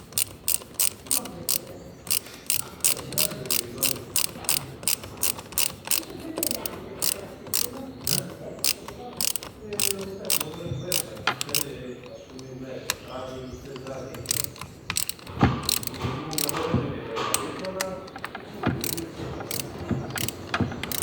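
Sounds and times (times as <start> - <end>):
ratchet wrench clicking: 0.0 - 21.0.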